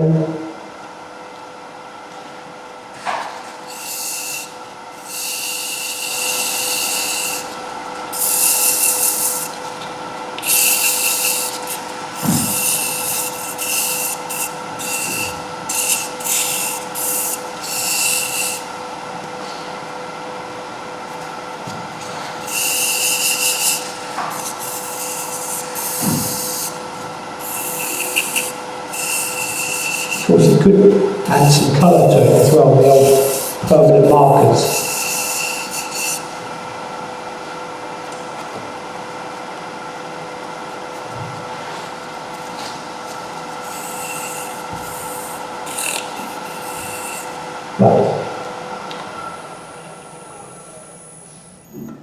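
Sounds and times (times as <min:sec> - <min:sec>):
wood lathe humming: 0:03.5 - 0:38.2, 0:39.5 - 0:51.3
abrasive rasping on spinning wood: 0:03.6 - 0:18.8, 0:22.0 - 0:36.4, 0:40.9 - 0:48.0.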